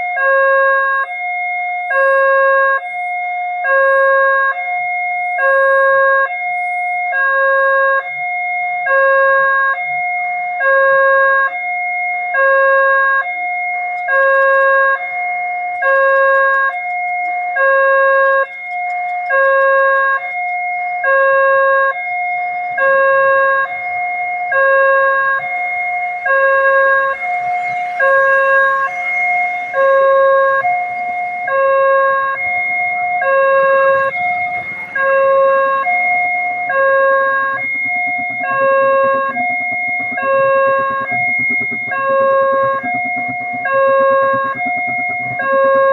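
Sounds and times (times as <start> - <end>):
level crossing two-tone alarm: 0.0 - 45.9.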